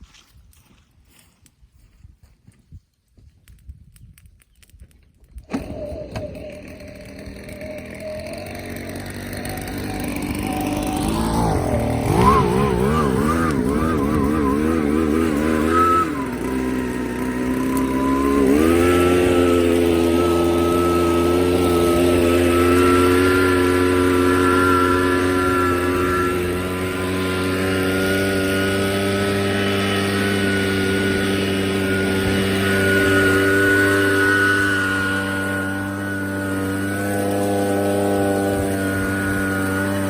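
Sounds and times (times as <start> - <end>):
blower machine droning: 5.4 - 40.0.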